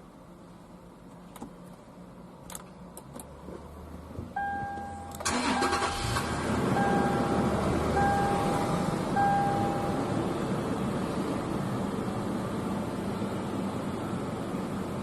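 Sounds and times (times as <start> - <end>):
car engine cranking and running: 2.4 - 15.0
dashboard warning chime beeps: 4.4 - 6.1, 6.7 - 10.2.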